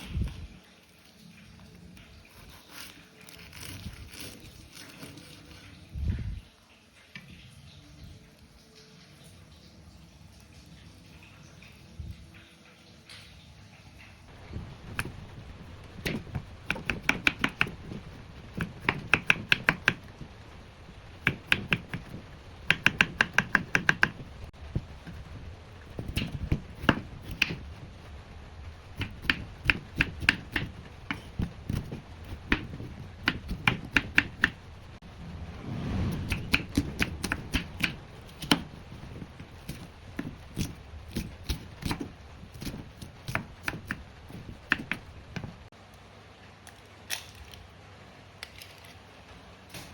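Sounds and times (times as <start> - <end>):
knife chopping on cutting board: 16.0 - 18.0, 18.6 - 20.1, 21.2 - 24.2, 26.0 - 27.6, 29.0 - 34.6, 36.2 - 45.5.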